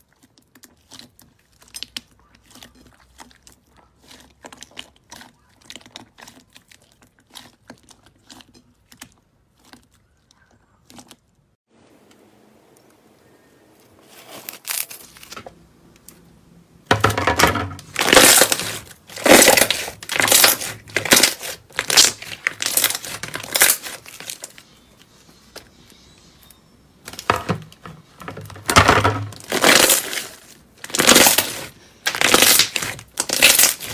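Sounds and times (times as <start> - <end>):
slime squished by hand: 17.9 - 24.6, 29.4 - 33.9.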